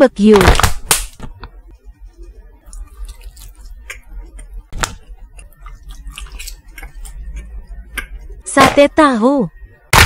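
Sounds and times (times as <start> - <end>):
chewing with mouth clicks: 2.6 - 4.5, 5.3 - 7.6.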